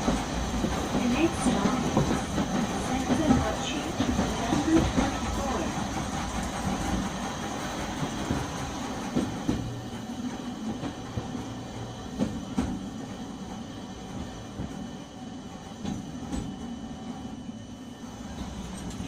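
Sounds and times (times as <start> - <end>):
wheels knocking: 0.0 - 15.0
tram rumbling on rails: 0.0 - 19.0.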